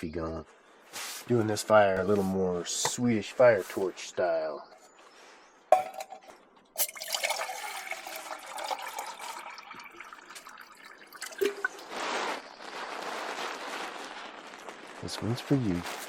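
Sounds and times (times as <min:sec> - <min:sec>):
water pouring into a pot: 0:06.8 - 0:12.5.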